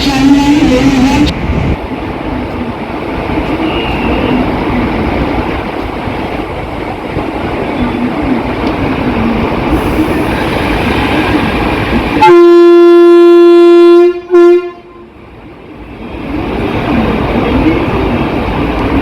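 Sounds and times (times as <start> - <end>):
train rumbling: 0.0 - 19.0
train horn blast: 12.2 - 15.1.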